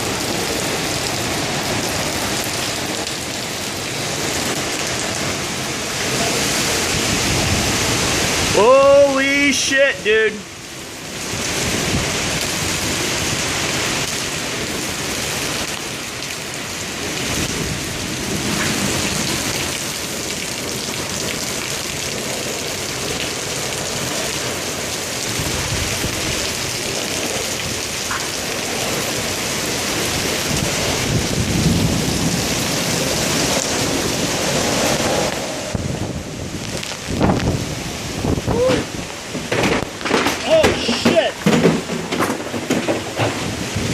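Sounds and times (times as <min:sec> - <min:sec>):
heavy rain pouring: 0:00.0 - 0:43.9
thunder rumbling: 0:30.0 - 0:43.9.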